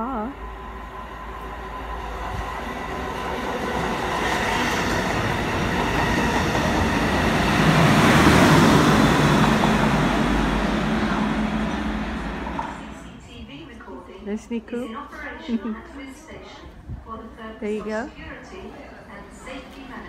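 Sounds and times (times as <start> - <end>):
train engine droning: 0.0 - 13.5
maintenance train passing: 0.0 - 15.4.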